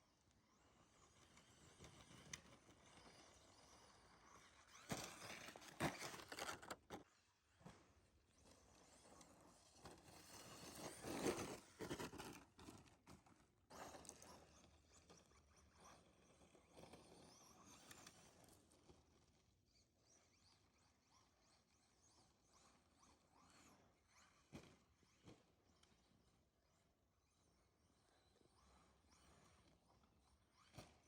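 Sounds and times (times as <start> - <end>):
rc truck motor whine: 0.8 - 7.0.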